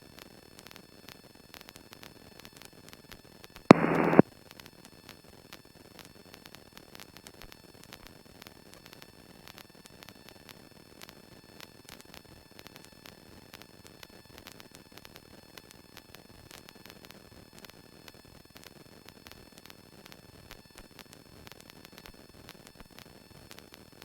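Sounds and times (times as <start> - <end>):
faint electrical static hiss: 3.7 - 4.2
high-pitched whines: 3.7 - 4.2
small clicks: 3.7 - 4.2.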